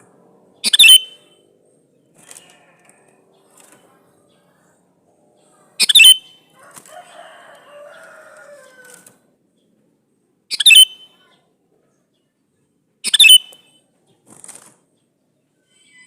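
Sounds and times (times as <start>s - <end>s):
bulbul calling: 0.6s - 1.4s, 5.7s - 6.5s, 10.5s - 11.2s, 13.0s - 13.7s.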